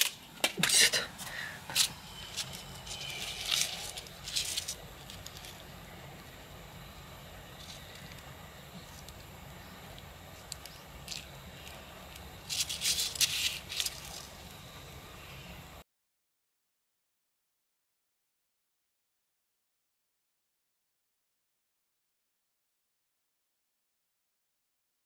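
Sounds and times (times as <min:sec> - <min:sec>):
knife cutting papery wasp nest: 0:07.6 - 0:14.4.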